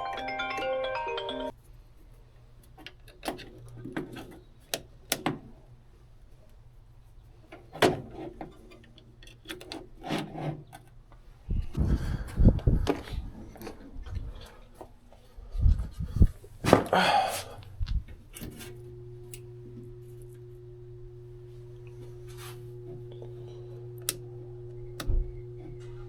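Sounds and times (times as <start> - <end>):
mallet percussion music: 0.0 - 1.5
low steady hum: 17.4 - 26.0.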